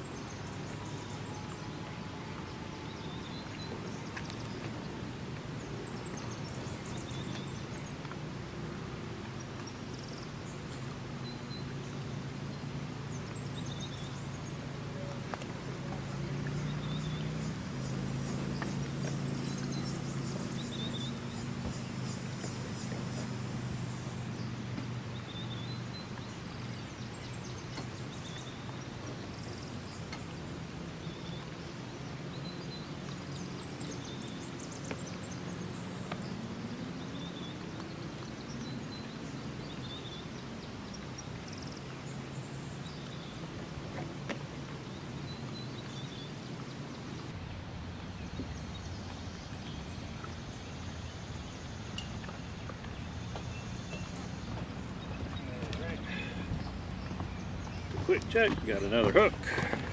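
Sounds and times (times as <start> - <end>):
bird chirping: 9.6 - 44.1.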